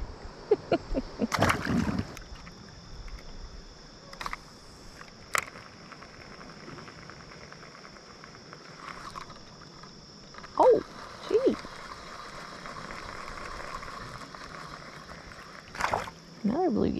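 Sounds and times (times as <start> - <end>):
insects droning: 0.0 - 16.9
sharp clicks: 4.1 - 5.7.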